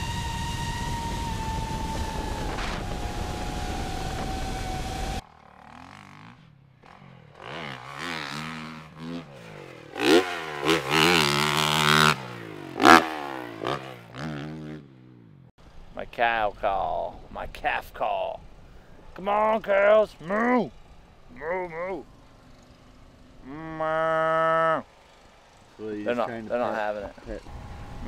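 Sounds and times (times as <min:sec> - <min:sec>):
high whine: 0:00.0 - 0:05.2
dirt bike engine revving: 0:00.0 - 0:15.9, 0:18.4 - 0:28.0.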